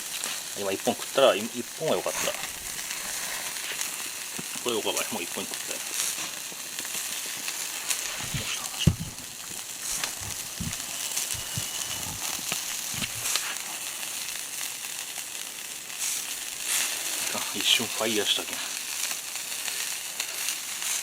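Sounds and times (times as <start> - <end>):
skewers sizzling over charcoal: 0.0 - 21.0
low knocks: 8.8 - 9.6.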